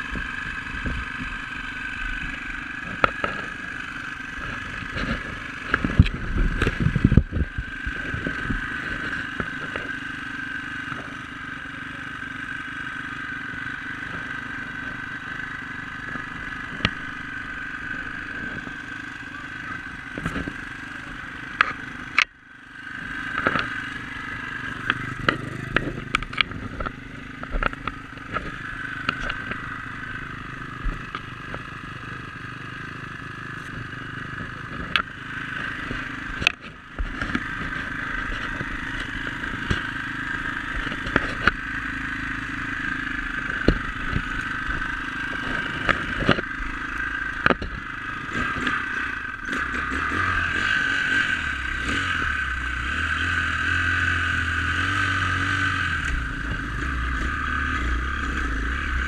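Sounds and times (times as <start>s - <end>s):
dirt bike engine running: 0.0s - 59.0s
sharp knocks and clatter: 47.4s - 50.8s.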